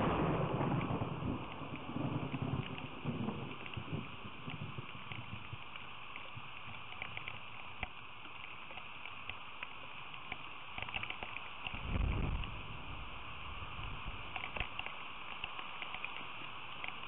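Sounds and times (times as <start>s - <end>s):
rain falling: 0.0s - 17.0s
sharp drip ticks: 4.4s - 11.8s, 14.3s - 17.0s
low rumble: 11.7s - 14.4s.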